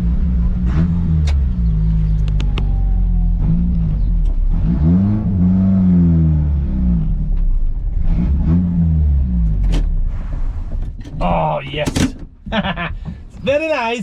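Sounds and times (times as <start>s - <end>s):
car engine revving: 0.0s - 11.2s
sharp clicks: 2.2s - 2.7s.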